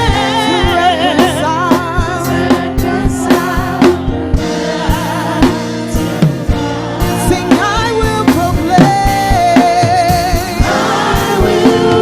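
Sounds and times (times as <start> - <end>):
drum kit steady beat: 0.0 - 12.0
held keyboard chords: 0.0 - 12.0
person singing with vibrato: 0.0 - 12.0.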